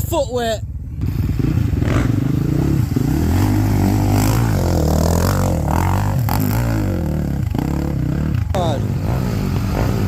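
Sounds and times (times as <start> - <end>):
motocross bike engine revving: 0.9 - 10.0.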